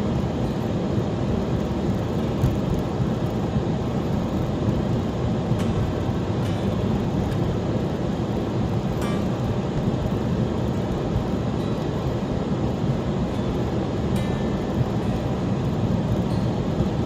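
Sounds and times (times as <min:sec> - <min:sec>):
vehicle road and engine noise: 0:00.0 - 0:17.0.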